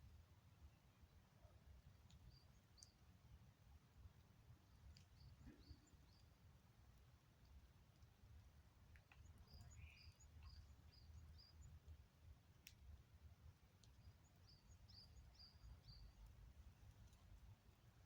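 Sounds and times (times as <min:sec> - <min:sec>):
faint high bird calls: 0:09.1 - 0:11.7.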